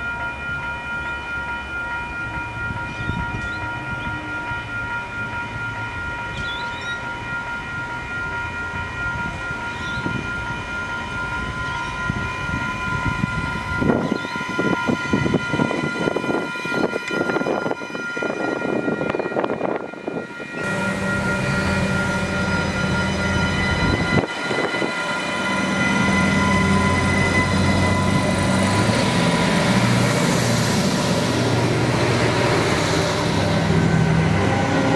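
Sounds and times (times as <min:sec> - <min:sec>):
railcar engine drone: 0:00.0 - 0:34.9
high-pitched whine tones: 0:19.1 - 0:34.9.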